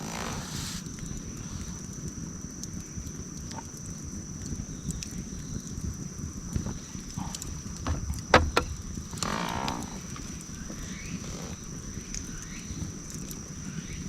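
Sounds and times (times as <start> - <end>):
campfire rumble and crackles: 0.0 - 14.0
wood snapping pops: 6.6 - 10.3.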